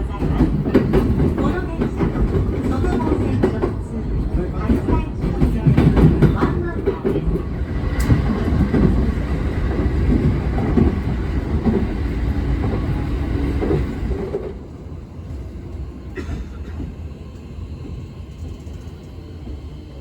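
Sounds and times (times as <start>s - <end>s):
train wheel clatter: 0.0s - 19.8s
electric train rumbling on rails: 0.0s - 20.0s.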